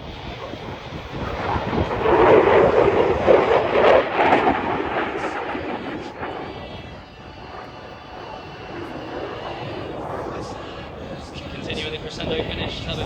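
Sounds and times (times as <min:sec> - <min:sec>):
jet engine rushing rumble: 0:00.0 - 0:13.0.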